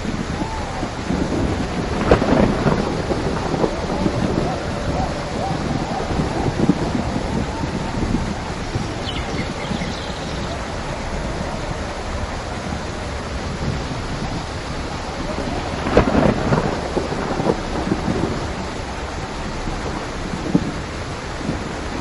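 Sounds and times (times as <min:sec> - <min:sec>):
heavy rain falling: 0:00.0 - 0:22.0
thunderclap rumbling: 0:00.0 - 0:22.0.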